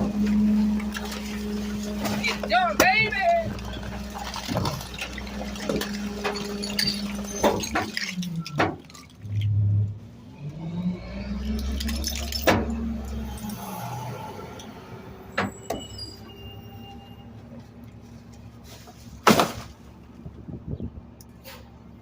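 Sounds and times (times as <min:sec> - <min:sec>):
trash clattering in hopper: 0:00.0 - 0:10.0, 0:11.3 - 0:13.7, 0:18.1 - 0:20.0
garbage truck hydraulic packer: 0:03.4 - 0:17.3.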